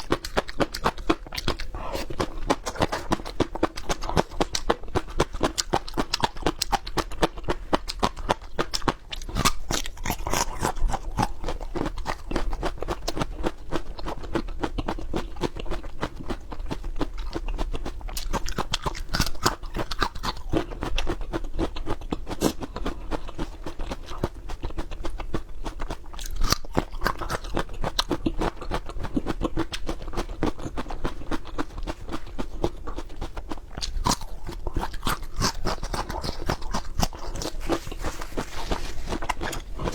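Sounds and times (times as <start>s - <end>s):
crunchy chewing of peppers: 0.0s - 39.9s.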